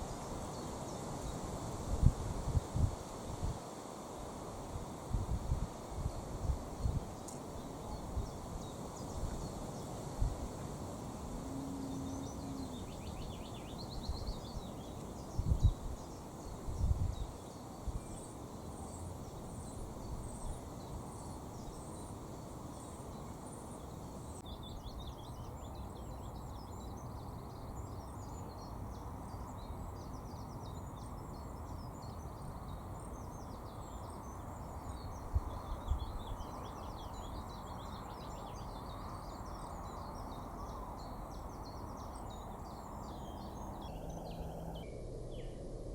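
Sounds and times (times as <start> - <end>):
small songbirds singing: 0.0 - 3.4, 4.1 - 45.6
outdoor background hiss: 0.0 - 45.9.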